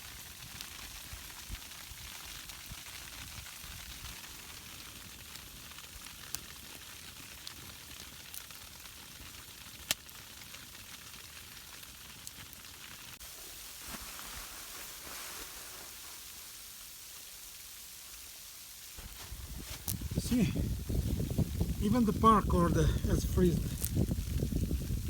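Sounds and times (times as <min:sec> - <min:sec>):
freezing rain hissing: 0:10.1 - 0:25.0.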